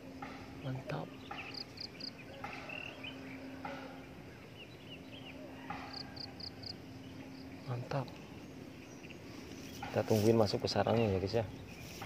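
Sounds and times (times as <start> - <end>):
faint steady hum: 0.0 - 12.0
bird chirps: 0.1 - 12.0.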